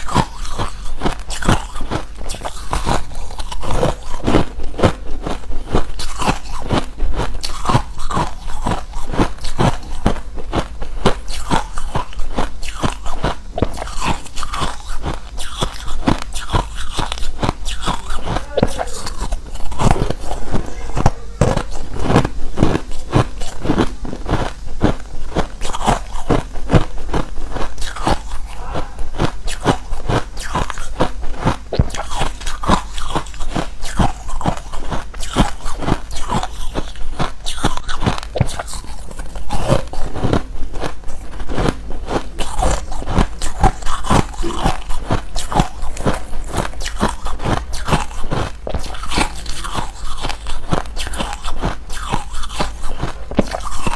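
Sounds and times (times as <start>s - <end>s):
crunching ice chewing: 0.0s - 53.9s.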